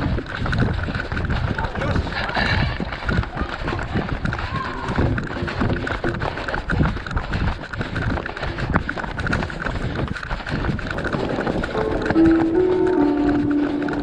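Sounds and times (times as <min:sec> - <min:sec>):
running footsteps: 0:00.0 - 0:14.0
held musical notes: 0:11.1 - 0:14.0.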